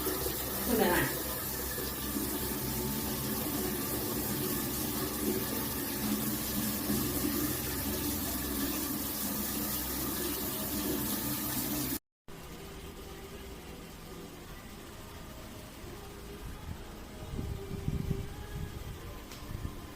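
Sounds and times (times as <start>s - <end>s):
water running from outlet: 0.0s - 12.0s
pump humming: 0.0s - 19.9s.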